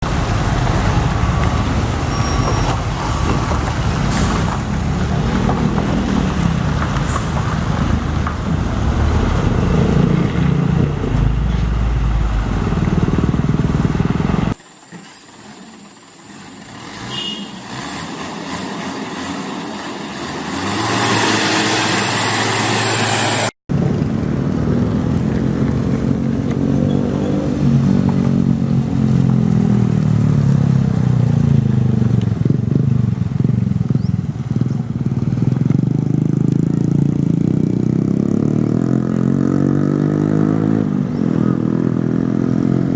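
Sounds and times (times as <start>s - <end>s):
road traffic noise: 0.0s - 42.9s
truck diesel engines running: 0.0s - 42.9s.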